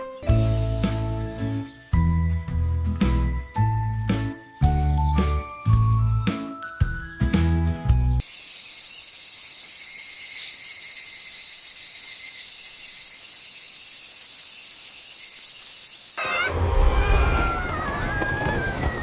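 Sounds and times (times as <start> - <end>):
crickets chirping: 8.2 - 16.2.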